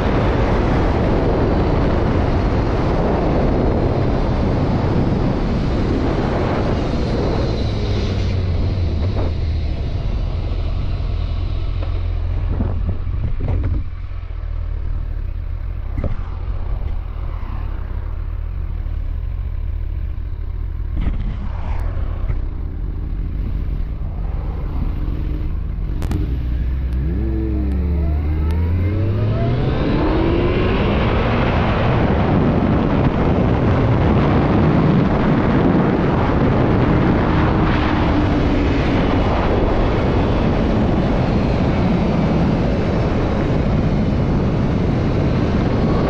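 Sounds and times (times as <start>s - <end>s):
motorcycle engine running: 0.0s - 46.0s
wind rushing over microphone: 0.0s - 46.0s.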